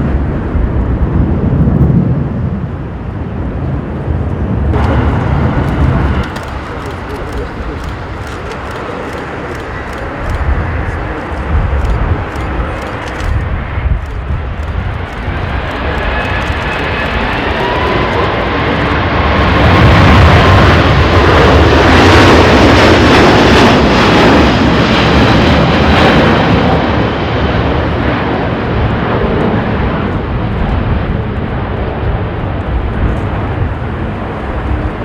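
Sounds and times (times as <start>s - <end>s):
jet airliner passing: 0.0s - 35.0s
whining engine tones: 4.8s - 20.8s.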